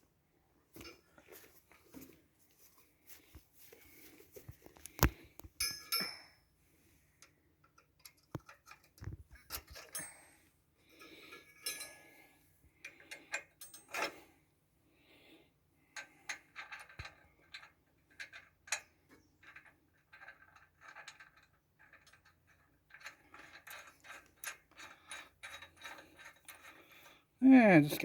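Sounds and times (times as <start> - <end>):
metal tools clinking on steel: 5.6 - 6.4, 9.5 - 12.2.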